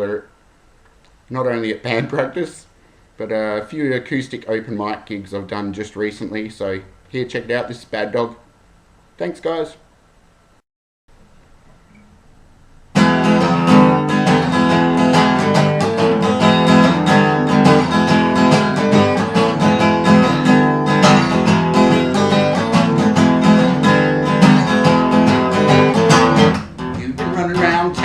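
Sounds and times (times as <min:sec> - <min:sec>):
acoustic guitar strumming: 0:12.9 - 0:28.0.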